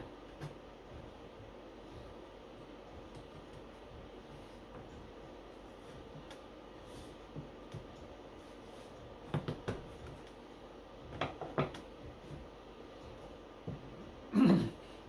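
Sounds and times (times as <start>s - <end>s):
wooden knocks and taps: 11.1s - 11.8s.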